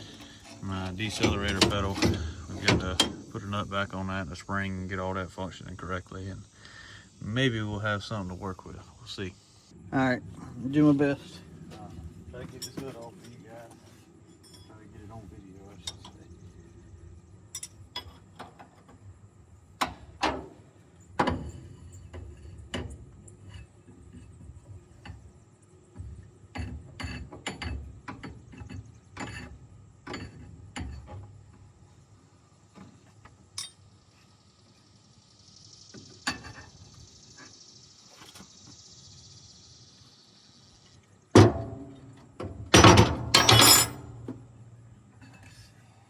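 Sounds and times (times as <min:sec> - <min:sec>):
clinks of hand tools and metal: 0:00.0 - 0:03.4, 0:12.4 - 0:16.2, 0:17.5 - 0:18.9, 0:26.6 - 0:31.3, 0:33.5 - 0:33.9, 0:42.7 - 0:44.4.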